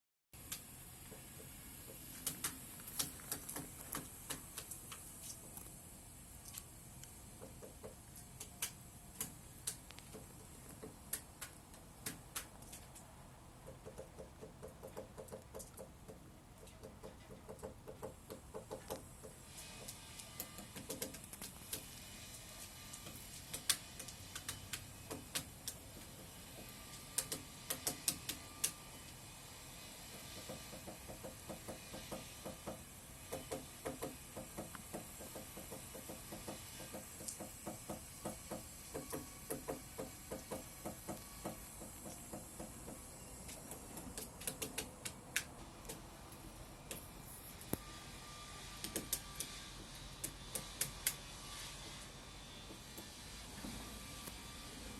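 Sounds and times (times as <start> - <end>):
woodpecker tapping on wood: 0.5 - 5.7, 7.4 - 13.0, 13.6 - 21.9, 23.0 - 28.8, 30.3 - 46.0.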